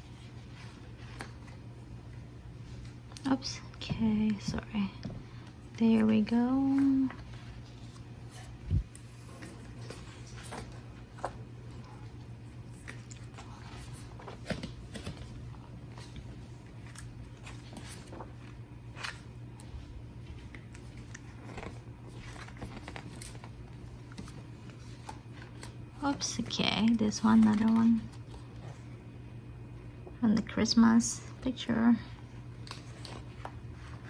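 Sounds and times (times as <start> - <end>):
steady low hum: 0.0 - 34.0
plastic and paper crinkling: 5.9 - 19.3, 20.2 - 28.9.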